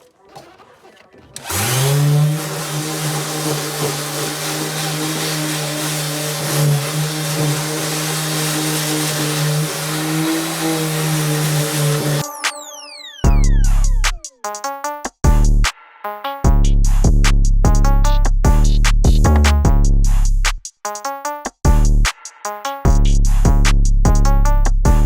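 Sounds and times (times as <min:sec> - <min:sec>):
electric sander grinding metal: 0:01.4 - 0:12.2.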